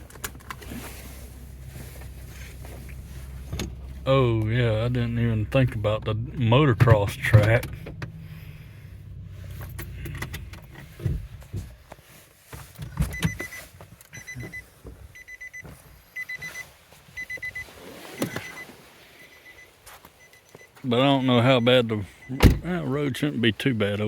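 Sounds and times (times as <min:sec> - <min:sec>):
vehicle engine rumble: 0:00.0 - 0:24.0
vehicle warning chime beeps: 0:13.1 - 0:24.0.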